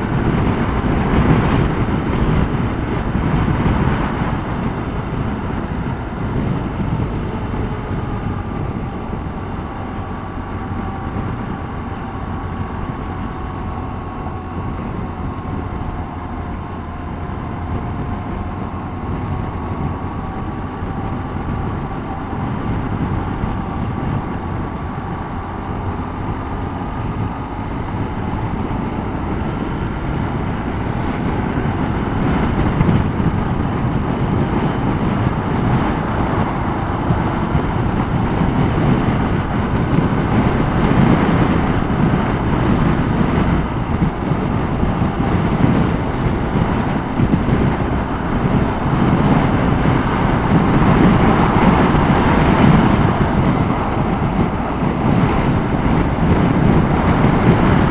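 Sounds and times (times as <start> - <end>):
motorcycle engine running: 0.0 - 57.9
wind buffeting microphone: 0.0 - 57.9.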